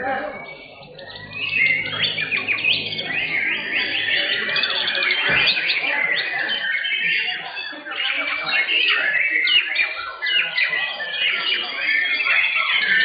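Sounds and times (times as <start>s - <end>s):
birds singing whistles and chirps: 0.0s - 13.0s.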